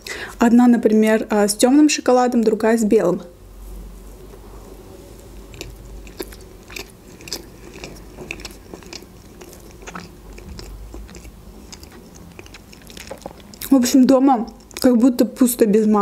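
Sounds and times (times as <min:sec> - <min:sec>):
person chewing with mouth closed: 0:05.2 - 0:15.0.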